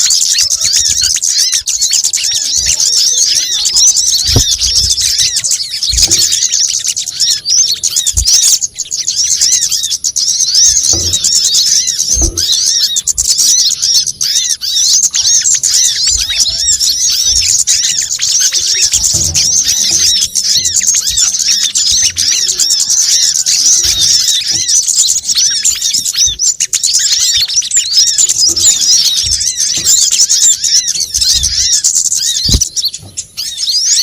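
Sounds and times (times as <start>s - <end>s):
small birds chirping chorus: 0.0s - 34.0s
soft low thumps: 4.0s - 6.6s.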